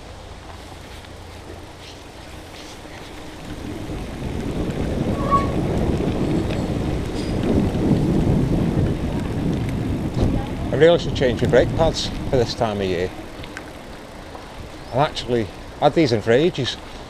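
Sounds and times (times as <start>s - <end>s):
bicycle tyres on wet path: 0.0s - 17.0s
wind buffeting microphone: 1.6s - 17.0s
brief squeak: 5.2s - 5.6s.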